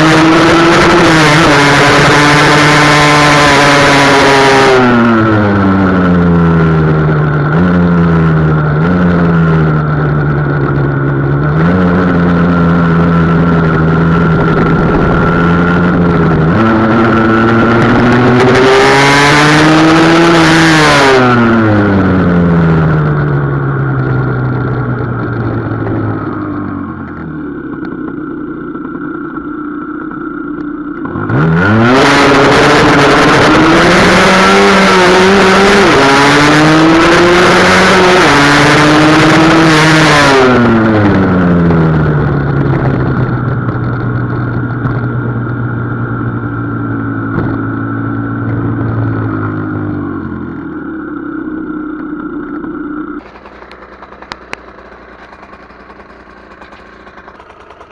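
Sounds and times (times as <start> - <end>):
two-stroke motorcycle engine: 0.0 - 57.9.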